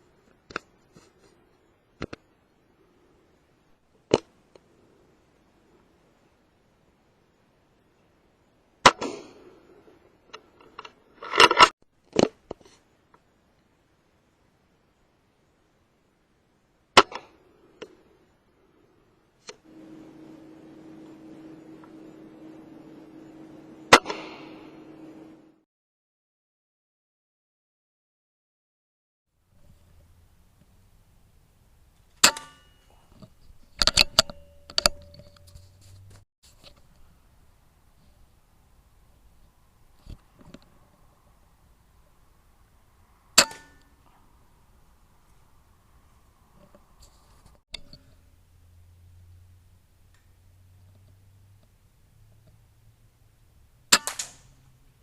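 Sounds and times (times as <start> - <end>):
air rifle shot: 23.9 - 24.8
metallic clicks of rifle handling: 33.2 - 35.6, 53.9 - 54.5
rifle bolt clicks: 53.9 - 54.4.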